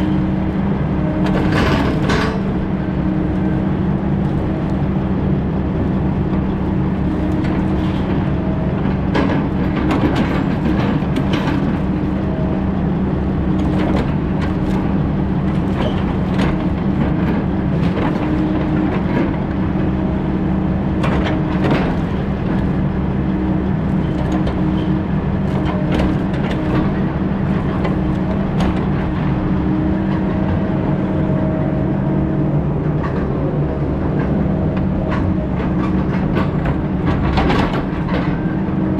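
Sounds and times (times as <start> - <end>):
diesel engine running under load: 0.0 - 38.9
knocks and clanks: 34.1 - 38.9.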